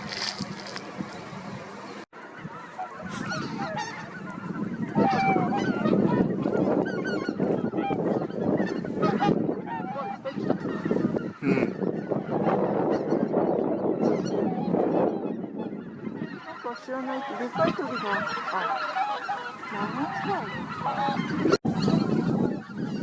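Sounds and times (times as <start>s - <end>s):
geese calling: 0.0s - 23.0s.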